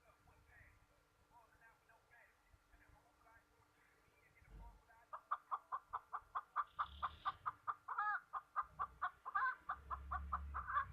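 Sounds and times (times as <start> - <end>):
bird clucking calls: 5.0 - 10.9
longer bird call: 6.4 - 10.9.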